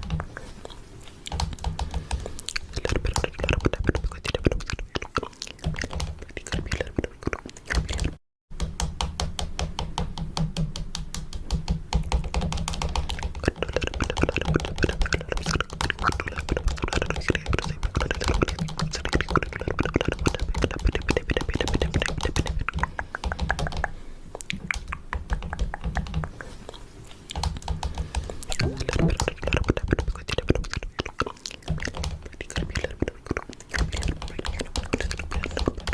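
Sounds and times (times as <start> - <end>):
fingernails tapping on camera: 20.2 - 26.5.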